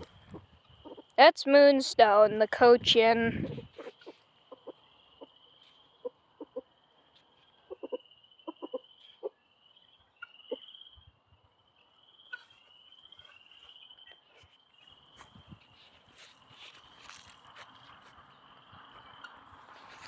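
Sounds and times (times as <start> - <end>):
chickens clucking: 0.0 - 1.2, 3.3 - 9.4, 18.2 - 20.0.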